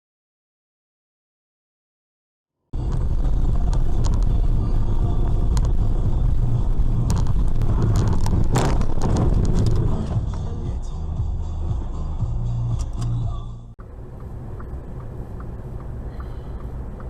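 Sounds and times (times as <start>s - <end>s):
engine and tyre rumble: 2.8s - 17.0s.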